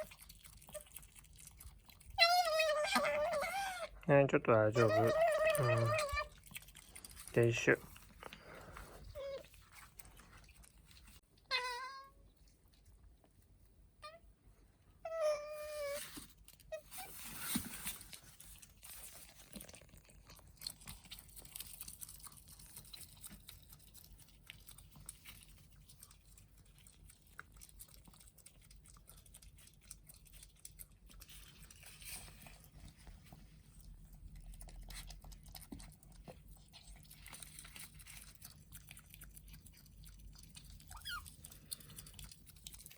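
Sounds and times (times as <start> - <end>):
faint chewing: 0.0 - 4.1, 4.8 - 14.2, 15.1 - 42.9
small pet animal calling: 1.9 - 4.0, 4.7 - 6.9, 9.0 - 9.8, 11.4 - 12.2, 14.0 - 14.3, 15.0 - 17.2, 40.7 - 41.5.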